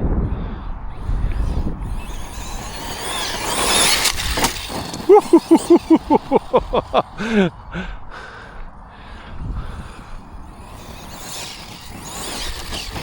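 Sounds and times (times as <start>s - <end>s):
rc truck electric motor: 0.9s - 7.6s, 8.2s - 13.0s
short pitched pulses: 0.9s - 7.7s, 9.5s - 13.0s
tyres on loose ground: 0.9s - 13.0s.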